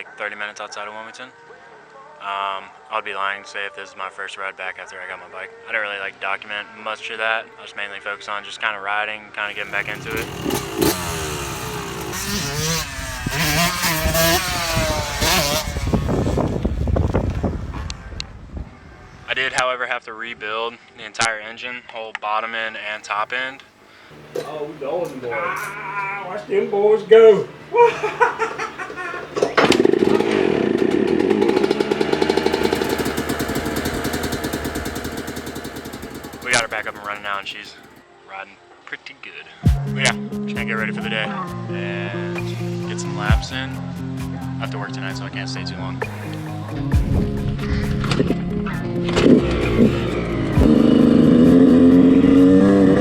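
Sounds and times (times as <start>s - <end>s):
dirt bike engines revving: 9.5s - 17.3s, 24.0s - 38.0s, 49.2s - 53.0s.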